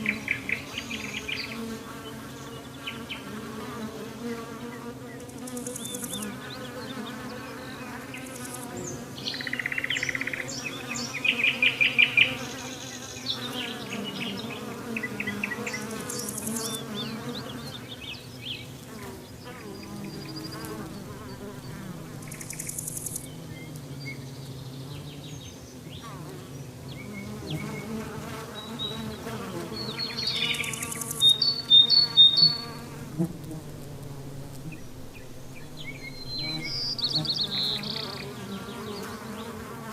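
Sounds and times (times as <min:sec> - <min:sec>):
insect buzzing: 0:00.0 - 0:39.9
bird chirps: 0:04.4 - 0:18.7, 0:19.4 - 0:26.1, 0:26.9 - 0:32.9, 0:34.6 - 0:39.6.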